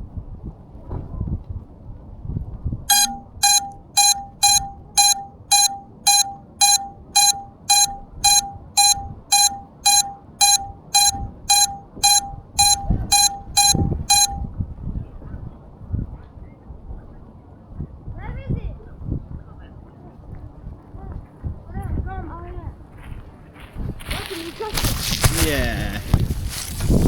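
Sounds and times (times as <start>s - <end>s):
electronic short beeps: 2.9s - 14.5s.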